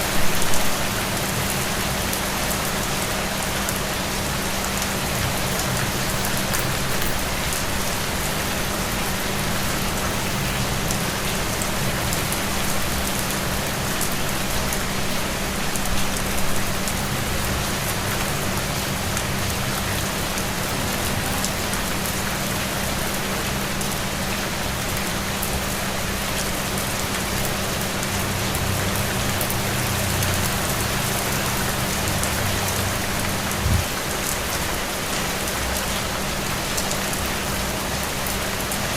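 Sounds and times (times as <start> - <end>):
rain spatters: 0.0 - 38.9
steady rain falling: 0.0 - 38.9.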